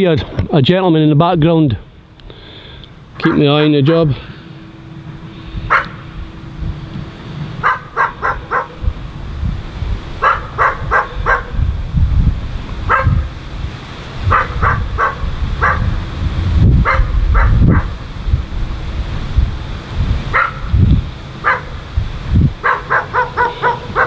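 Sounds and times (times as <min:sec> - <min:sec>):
steady low rumble: 0:00.0 - 0:24.0
dog barking: 0:05.7 - 0:06.0, 0:07.6 - 0:08.8, 0:10.2 - 0:11.6, 0:12.9 - 0:13.3, 0:14.3 - 0:16.0, 0:16.8 - 0:18.0, 0:20.3 - 0:20.7, 0:21.4 - 0:21.8, 0:22.6 - 0:24.0.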